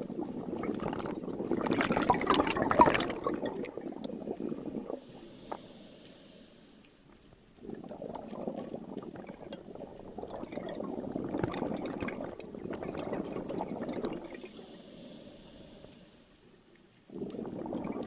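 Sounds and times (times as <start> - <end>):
bubbles from diving regulator: 0.0 - 5.0, 7.6 - 14.5, 17.1 - 18.0.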